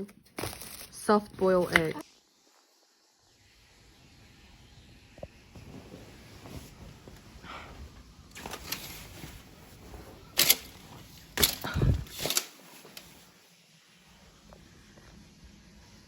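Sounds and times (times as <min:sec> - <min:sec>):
handling noise: 0:08.3 - 0:13.2.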